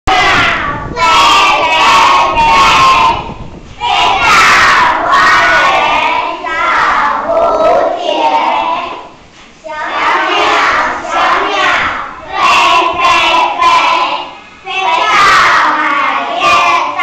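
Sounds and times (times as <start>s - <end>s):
children singing in unison: 0.1s - 17.0s.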